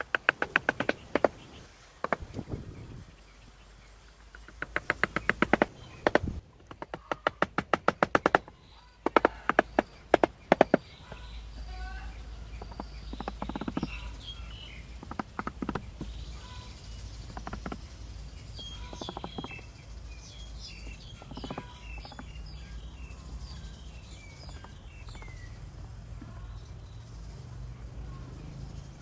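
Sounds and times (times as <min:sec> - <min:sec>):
rapid clicking: 0:00.0 - 0:02.5, 0:04.0 - 0:29.0
small birds chirping: 0:00.0 - 0:29.0
steady low hum: 0:09.3 - 0:29.0.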